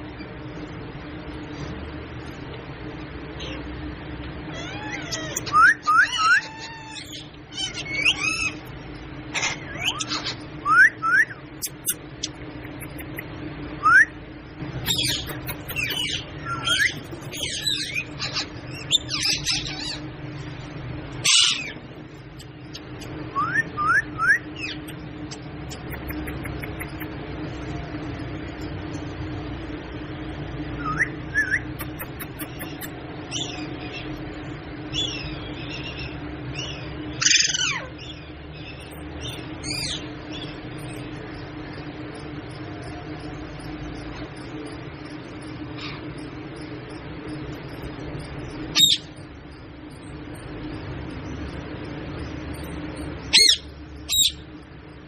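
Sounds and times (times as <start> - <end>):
steady low hum: 0.0 - 55.0
parrot chirping and whistling: 4.6 - 8.6, 9.7 - 13.2, 14.8 - 20.0, 22.4 - 25.0, 25.7 - 27.1, 30.8 - 33.6.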